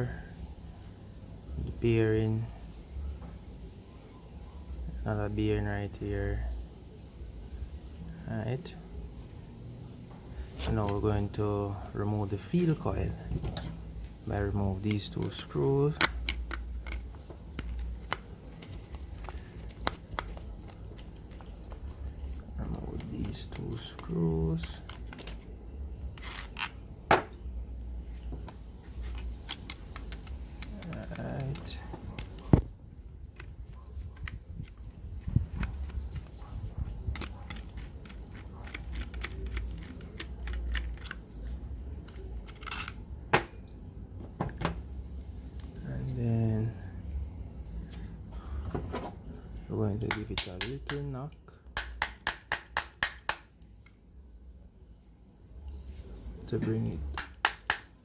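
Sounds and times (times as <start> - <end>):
faint low hum: 0.0 - 58.0
screwdriver and metal parts clicking: 29.1 - 32.4, 37.1 - 43.0, 50.0 - 54.0
screwdriver clicking and tapping: 37.1 - 41.2, 50.1 - 51.1, 51.8 - 53.5, 57.2 - 57.9.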